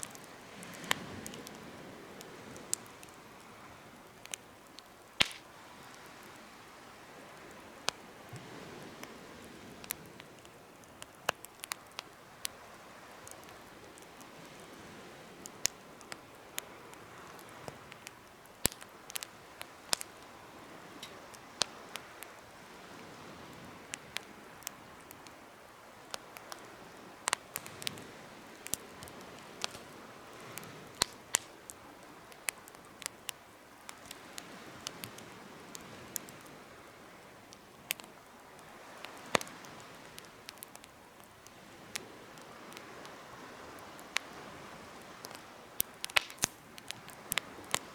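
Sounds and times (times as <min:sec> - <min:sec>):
campfire crackling and popping: 0:00.0 - 0:47.9
hiss of burning: 0:05.1 - 0:06.8.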